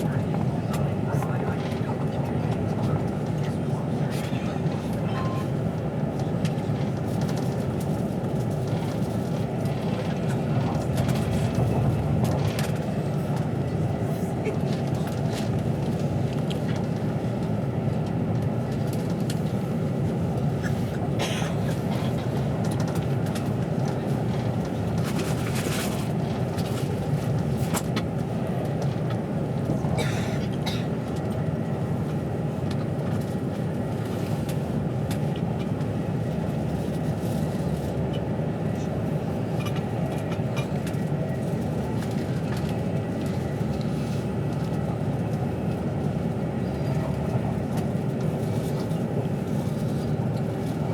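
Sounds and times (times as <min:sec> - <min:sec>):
moving train rumble: 0:00.0 - 0:50.9.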